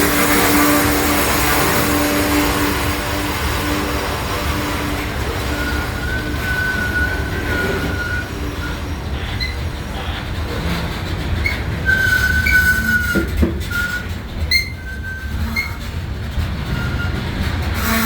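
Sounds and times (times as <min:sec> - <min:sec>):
freight train cars rolling: 0:00.0 - 0:18.0
steel wheels squealing on rail: 0:00.0 - 0:18.0
train knocks: 0:00.0 - 0:18.0.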